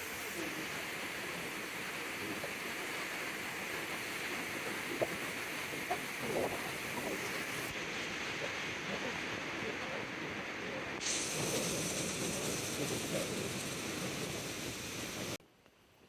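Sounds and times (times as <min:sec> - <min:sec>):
water rushing roar: 0:00.0 - 0:15.4
wind on microphone: 0:00.0 - 0:15.4.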